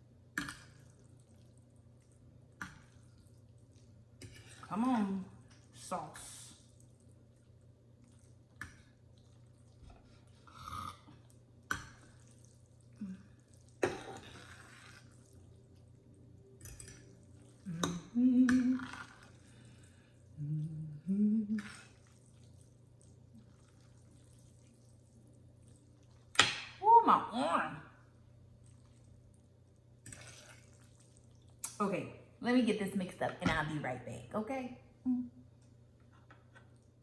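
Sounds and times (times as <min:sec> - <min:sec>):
wet squishes of noodles: 0:00.3 - 0:26.8, 0:28.0 - 0:31.8, 0:35.6 - 0:37.0
person humming: 0:17.6 - 0:19.2, 0:20.4 - 0:21.8, 0:35.0 - 0:35.4.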